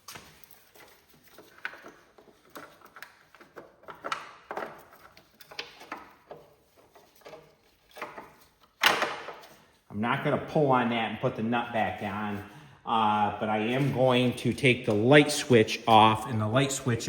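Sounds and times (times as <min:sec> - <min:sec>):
tools knocking and rattling on parts: 0:00.4 - 0:09.6.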